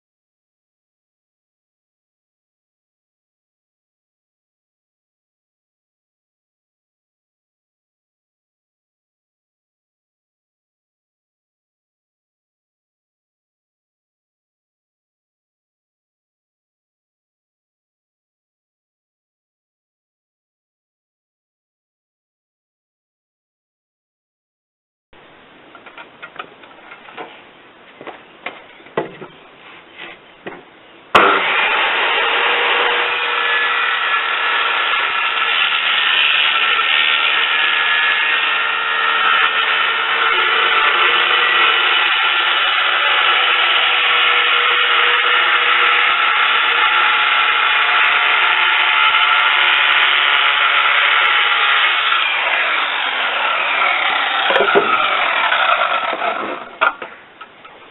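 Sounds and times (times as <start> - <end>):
power tool running: 31.2 - 57.0.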